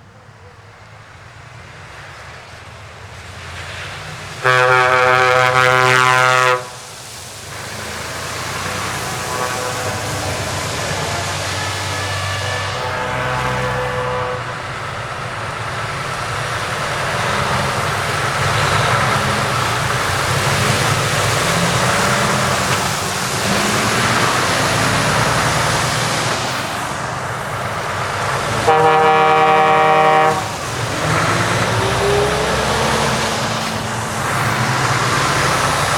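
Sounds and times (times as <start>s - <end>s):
heavy trucks passing: 0.0s - 35.9s
truck horn blast: 4.4s - 6.9s, 8.7s - 15.0s, 28.4s - 35.0s.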